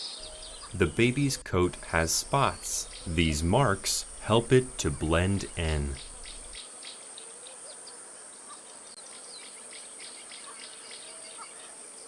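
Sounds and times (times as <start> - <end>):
bird chirps: 0.0 - 6.6
constant high hiss: 0.0 - 10.3
insects chirping: 0.2 - 6.6.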